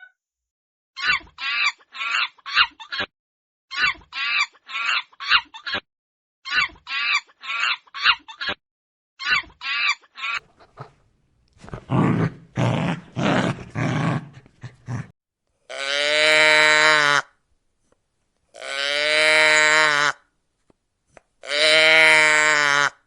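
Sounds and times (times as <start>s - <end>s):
rough grunts: 11.6s - 15.2s.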